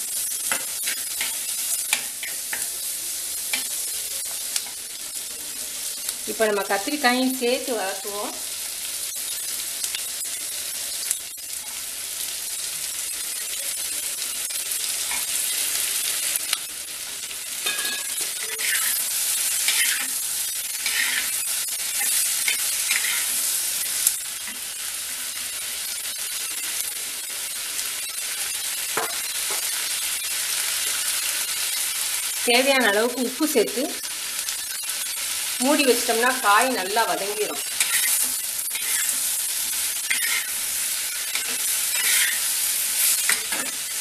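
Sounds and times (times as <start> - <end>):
vegetables sizzling in oil: 0.0 - 44.0
spatula scraping pot: 17.6 - 19.0, 20.8 - 21.4, 37.6 - 39.2, 40.0 - 40.6, 41.2 - 42.5.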